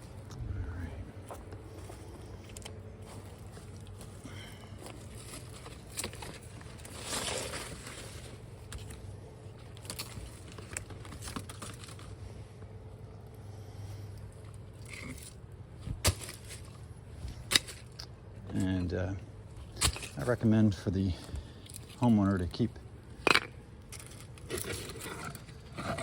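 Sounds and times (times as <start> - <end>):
steady low hum: 0.0 - 26.0
stone scraping: 24.5 - 26.0.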